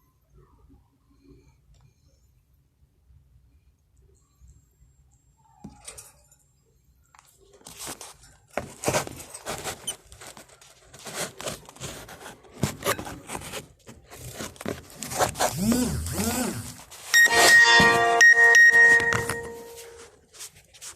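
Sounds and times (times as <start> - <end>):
rustling and scraping handling noises: 5.6 - 20.9.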